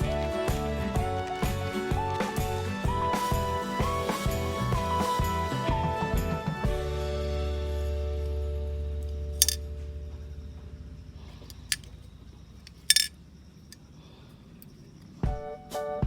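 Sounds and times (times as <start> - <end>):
background music: 0.0 - 9.6
sharp metallic clicks: 9.4 - 9.6, 11.5 - 13.8.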